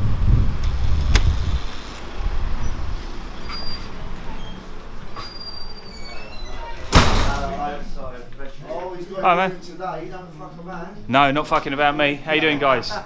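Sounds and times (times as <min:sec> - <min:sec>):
low rumble: 0:00.0 - 0:03.0
road traffic: 0:00.0 - 0:05.9.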